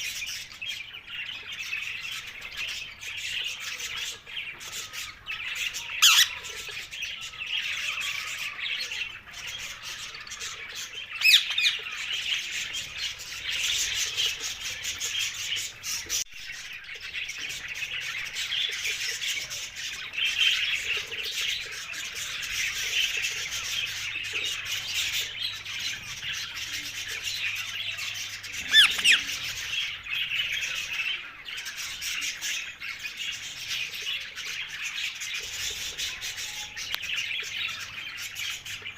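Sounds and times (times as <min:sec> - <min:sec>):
parakeets chattering and squawking: 0:00.0 - 0:38.9
loud sharp squawks: 0:06.0 - 0:06.4, 0:28.5 - 0:29.6.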